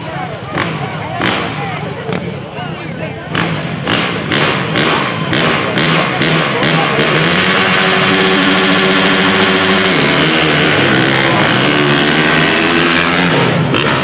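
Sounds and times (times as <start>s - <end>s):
motorcycle engines at full throttle: 0.0s - 14.0s.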